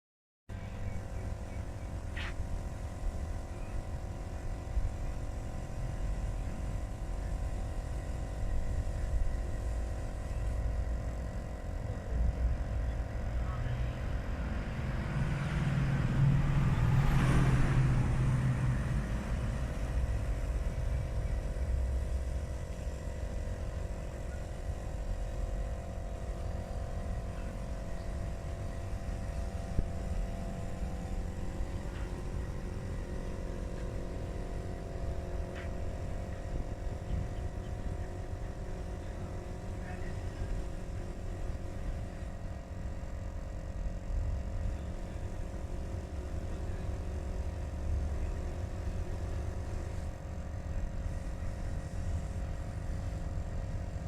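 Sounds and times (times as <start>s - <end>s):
constant hum: 0.5s - 54.0s
traffic rumble: 0.5s - 54.0s
motor vehicle passing: 13.5s - 20.5s.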